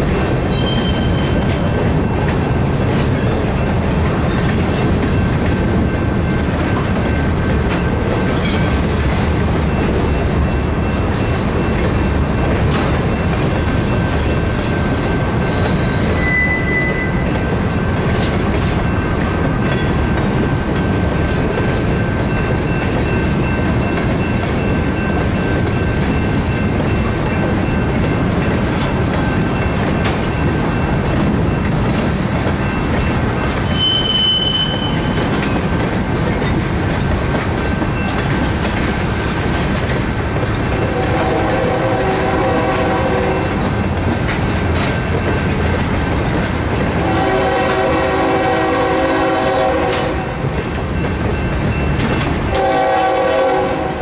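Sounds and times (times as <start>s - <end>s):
freight cars rolling on rails: 0.0s - 54.0s
high wheel squeal: 0.5s - 1.4s, 12.8s - 13.4s, 15.3s - 17.3s, 33.6s - 35.3s.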